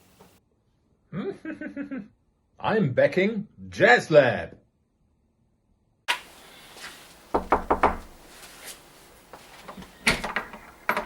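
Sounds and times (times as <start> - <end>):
faint room noise: 0.0 - 11.0
knocking: 7.3 - 8.1, 9.7 - 11.0.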